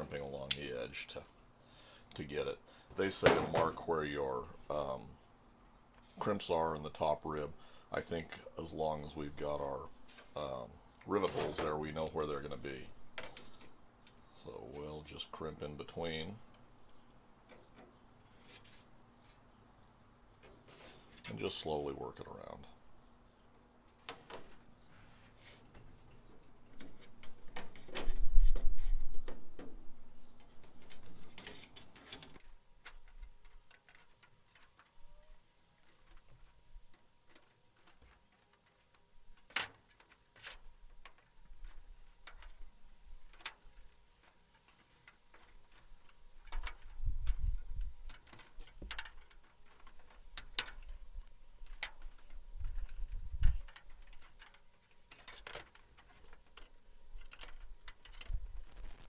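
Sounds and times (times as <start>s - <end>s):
crimping pliers clicking on metal: 0.4s - 0.8s, 32.4s - 59.0s
handling bumps: 32.1s - 59.0s.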